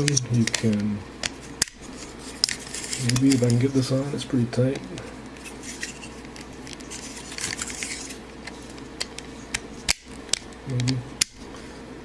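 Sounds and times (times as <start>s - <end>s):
plastic parts rubbing and scraping: 0.0s - 3.9s, 4.8s - 9.9s.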